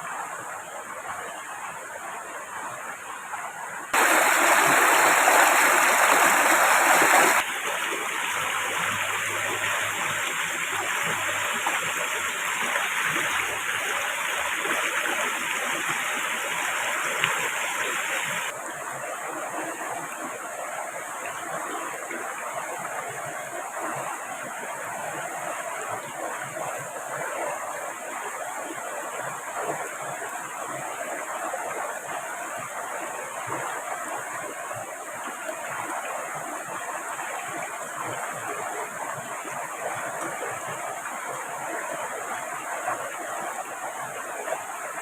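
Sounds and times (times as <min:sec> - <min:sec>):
river rushing: 0:00.3 - 0:45.0
heavy rain: 0:04.0 - 0:12.7.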